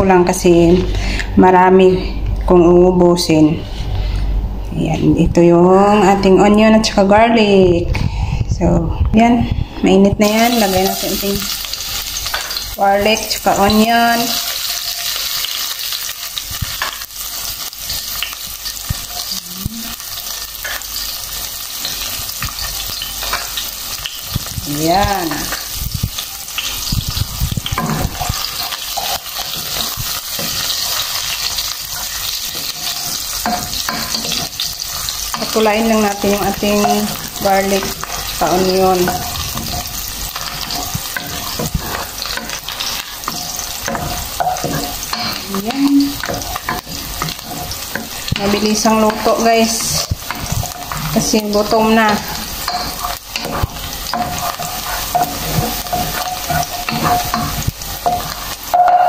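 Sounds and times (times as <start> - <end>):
garlic and onion sizzling in oil: 10.1 - 59.0
wooden spatula scraping a pot: 25.0 - 58.9.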